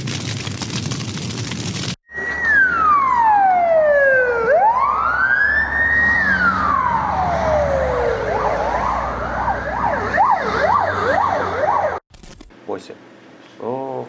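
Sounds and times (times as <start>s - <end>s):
siren wailing: 2.1s - 12.0s.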